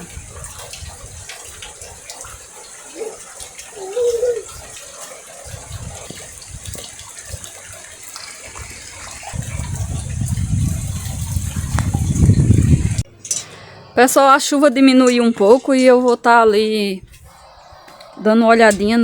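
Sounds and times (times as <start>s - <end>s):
steady rain: 0.0s - 13.1s.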